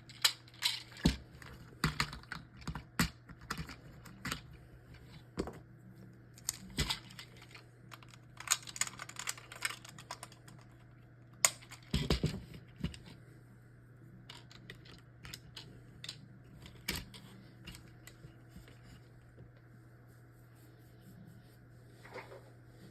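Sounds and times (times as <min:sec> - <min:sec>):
plastic toy parts clicking: 0:06.4 - 0:10.7.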